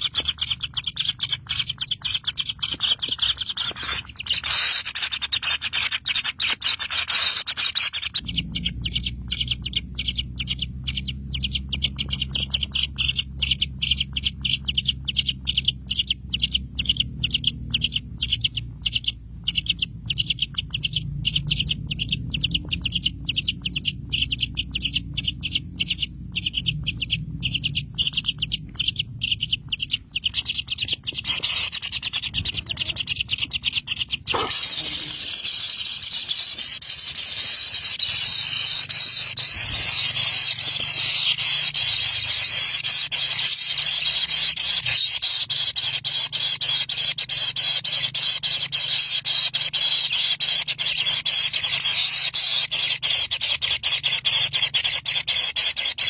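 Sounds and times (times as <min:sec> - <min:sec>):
bird chirping: 0:00.0 - 0:56.0
low steady hum: 0:07.7 - 0:46.0.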